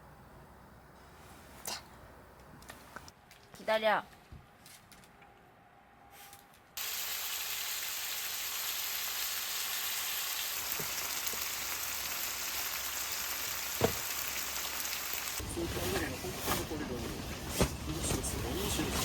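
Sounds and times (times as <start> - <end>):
food sizzling: 6.8 - 15.4.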